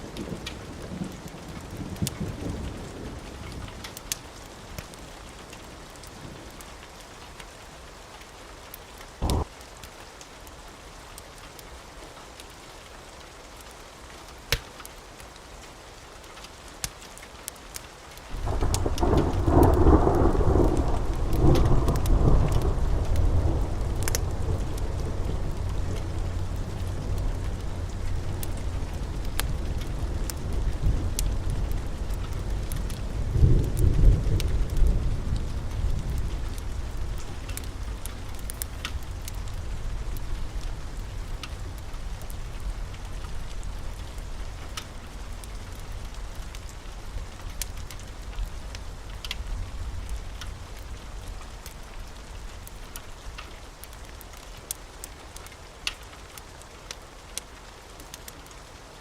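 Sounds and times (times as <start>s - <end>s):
fire crackling and popping: 0.0s - 59.0s
steady rain: 0.0s - 59.0s
thunder rumbling: 9.2s - 9.5s, 18.3s - 48.3s.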